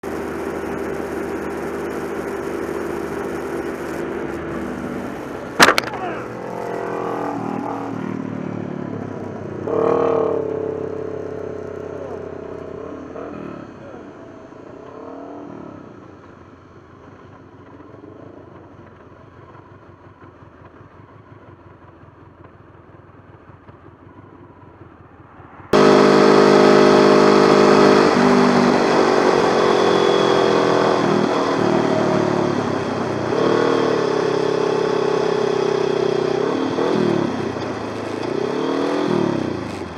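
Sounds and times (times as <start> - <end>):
motorcycle engine running: 0.0 - 39.9
bird striking motorcycle: 5.5 - 7.9.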